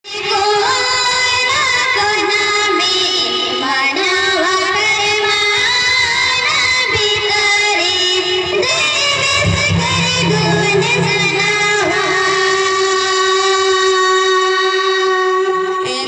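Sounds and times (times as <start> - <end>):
instrumental backing: 8.9 - 12.6.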